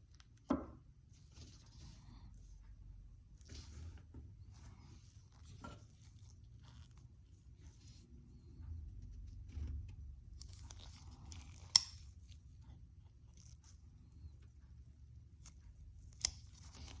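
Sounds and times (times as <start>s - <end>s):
folding knife click: 11.7s - 12.0s.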